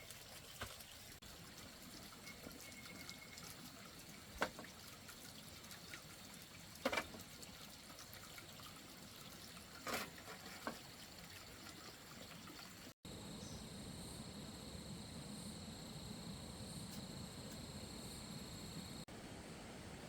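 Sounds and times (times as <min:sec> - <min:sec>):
faint running stream water: 0:00.0 - 0:13.1.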